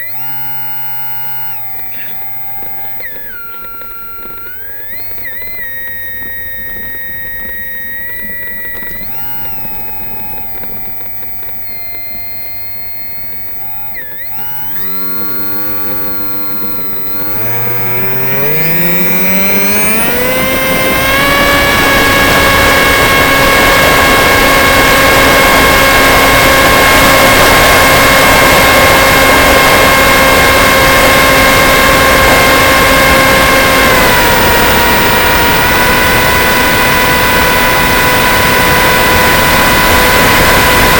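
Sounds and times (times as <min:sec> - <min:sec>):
model plane motor whine: 0:00.0 - 0:40.9.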